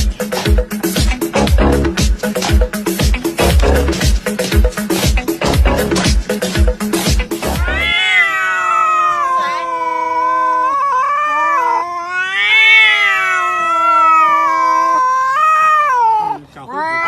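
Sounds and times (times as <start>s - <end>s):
cat yowling: 7.6s - 17.0s.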